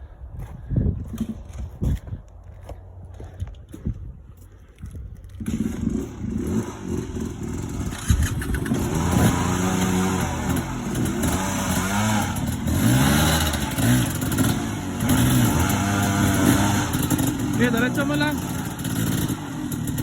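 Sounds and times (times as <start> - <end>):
dirt bike engine revving: 5.4 - 20.0.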